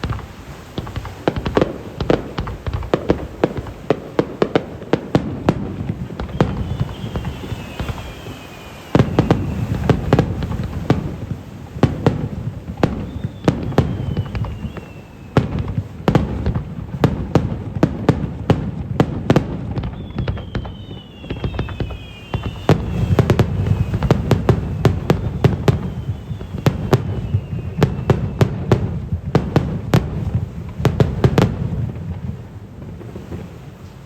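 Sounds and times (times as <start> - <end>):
falling firework whistles: 0.0 - 34.0
fireworks cracking and crackling: 0.0 - 34.0
shells rumbling: 11.8 - 17.2.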